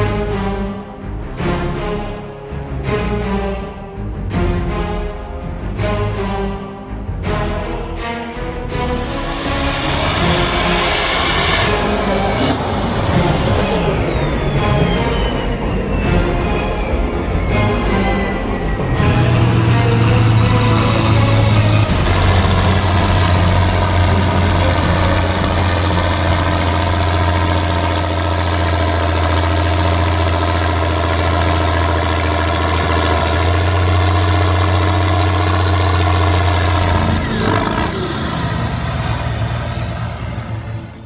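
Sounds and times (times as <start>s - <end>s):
heavy tractor engine running: 8.8s - 41.0s.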